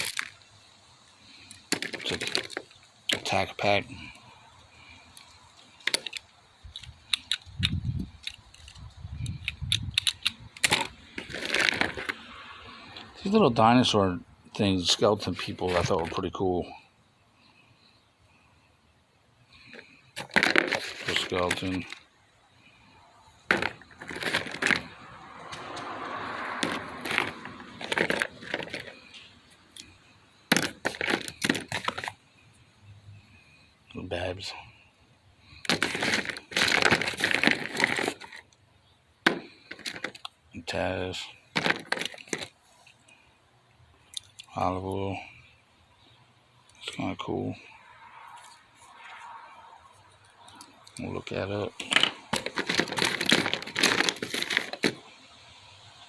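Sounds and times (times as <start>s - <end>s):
plastic toy figures clacking: 1.5s - 3.4s, 5.2s - 12.2s, 15.2s - 16.2s, 19.6s - 22.0s, 23.5s - 25.0s, 26.6s - 32.2s, 35.6s - 38.6s, 39.2s - 40.4s, 41.5s - 42.6s, 51.7s - 55.0s
muffled rubbing handling noise: 1.6s - 3.6s, 10.6s - 12.2s, 14.9s - 16.3s, 19.5s - 22.1s, 23.4s - 25.9s, 26.6s - 32.6s, 35.6s - 38.4s, 39.3s - 40.2s, 41.3s - 43.0s, 51.2s - 55.1s
plastic toy figures clicking: 5.2s - 12.2s, 51.7s - 55.0s
soft rustle: 52.2s - 55.1s.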